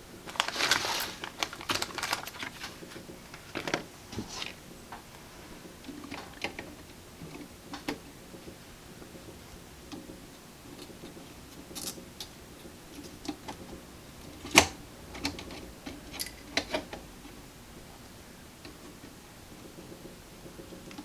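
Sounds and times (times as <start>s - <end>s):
hand tools clicking on wires: 11.6s - 17.1s.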